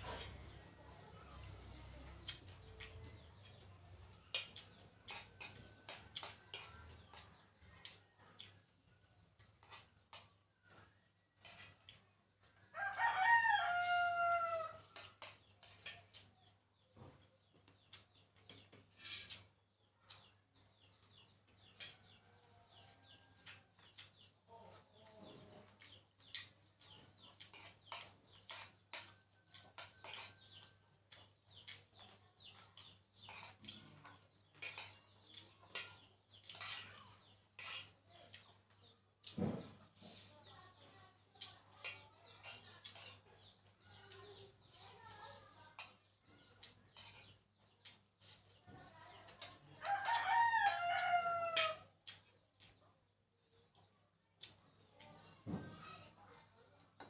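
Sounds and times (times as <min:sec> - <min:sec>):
rooster crowing: 0:12.8 - 0:14.8, 0:49.9 - 0:51.8.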